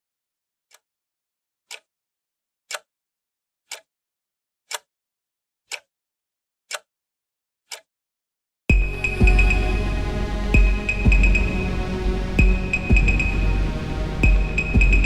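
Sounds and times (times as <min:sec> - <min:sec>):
electronic percussion hits: 0:08.7 - 0:15.0.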